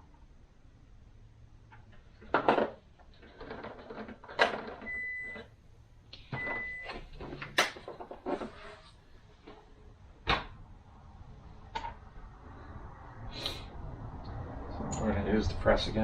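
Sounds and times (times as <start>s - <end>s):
parts clicking and knocking: 1.7s - 5.5s, 11.7s - 12.1s.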